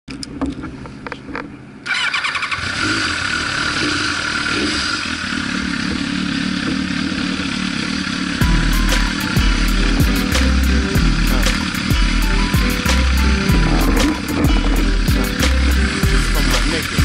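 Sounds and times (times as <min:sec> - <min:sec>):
sport bike engine running: 0:02.5 - 0:17.0.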